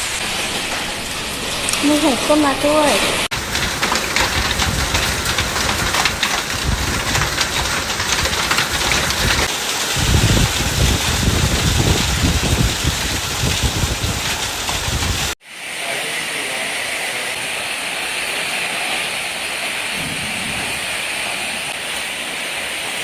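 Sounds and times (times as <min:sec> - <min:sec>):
hail and heavy rain pelting: 0:00.0 - 0:23.0
rain hissing: 0:00.0 - 0:23.0
low rumble: 0:20.0 - 0:21.8.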